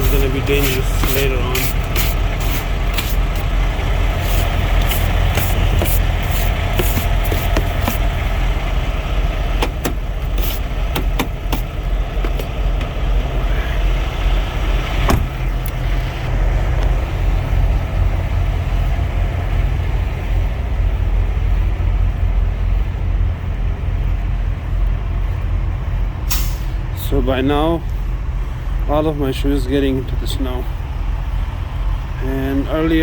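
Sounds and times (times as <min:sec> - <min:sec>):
vehicle engine idling: 0:00.0 - 0:33.0
sharp clicks and knocks: 0:04.3 - 0:08.1, 0:09.6 - 0:13.0.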